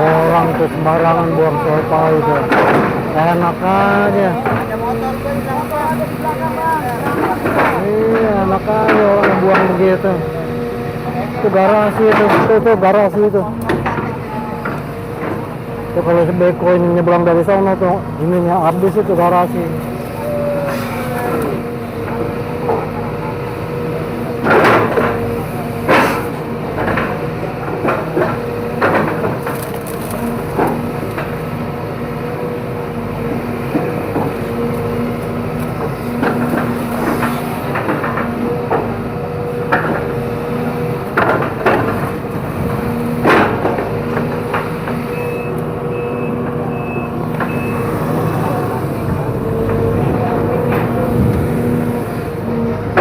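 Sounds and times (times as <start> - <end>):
excavator engine under load: 0.0 - 53.0
bamboo cracking and snapping: 28.9 - 31.3
reversing beeper: 45.1 - 48.6.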